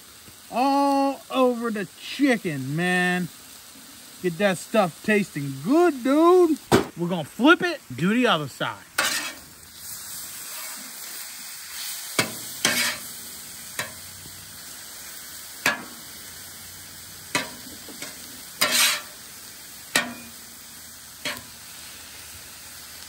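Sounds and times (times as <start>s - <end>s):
chicken sizzling on a griddle: 0.0s - 23.0s
metal spatula scraping griddle: 9.0s - 14.1s, 17.2s - 19.3s, 19.9s - 20.4s, 21.2s - 21.6s.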